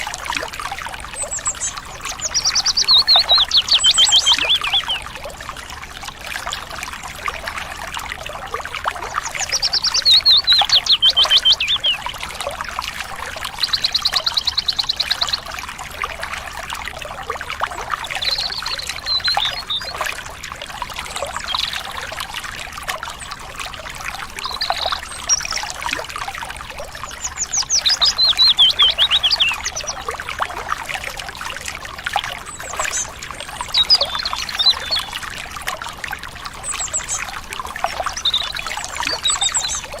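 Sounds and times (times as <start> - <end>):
stream water babbling: 0.0 - 40.0
bird singing trills: 1.2 - 5.1, 9.2 - 12.2, 13.6 - 15.4, 18.1 - 20.1, 27.0 - 30.0, 32.5 - 35.2, 36.6 - 40.0.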